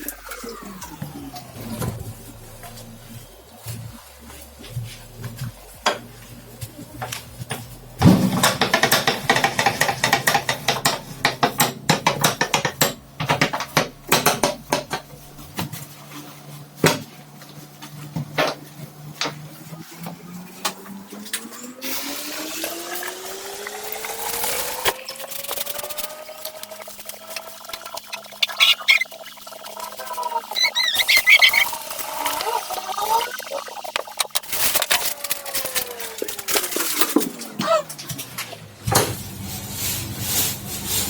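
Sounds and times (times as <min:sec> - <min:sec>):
dishes and utensils clattering: 0:05.8 - 0:15.2, 0:33.8 - 0:39.4
water running into a vessel: 0:21.8 - 0:37.6.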